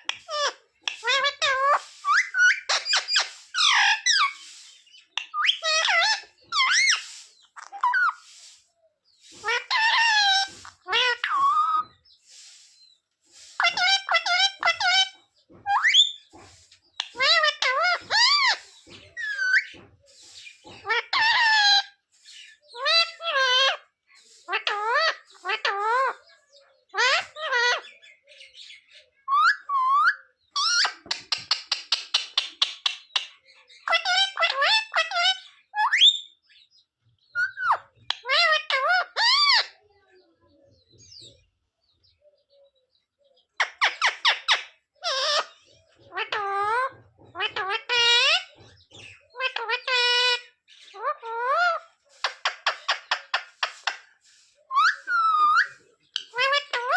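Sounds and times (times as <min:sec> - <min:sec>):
parrot calling: 0:00.0 - 0:08.5, 0:09.4 - 0:12.6, 0:13.5 - 0:19.7, 0:20.3 - 0:22.0, 0:22.8 - 0:23.9, 0:24.5 - 0:26.2, 0:26.9 - 0:27.9, 0:33.8 - 0:36.3, 0:37.4 - 0:39.8, 0:43.6 - 0:56.9.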